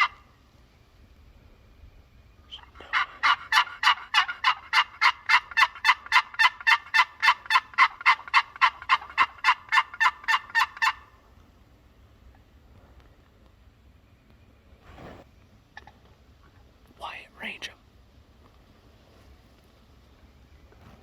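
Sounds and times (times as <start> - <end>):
turkey yelping: 0.0 - 0.3, 2.5 - 11.2.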